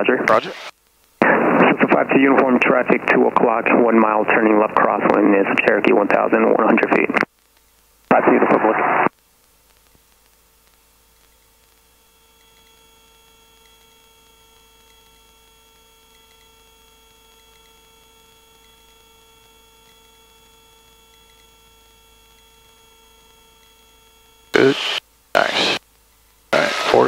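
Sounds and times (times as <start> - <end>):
low hiss: 0.0 - 21.6, 24.4 - 27.0
constant whining tones: 0.0 - 27.0
helicopter cabin hum: 24.6 - 25.8.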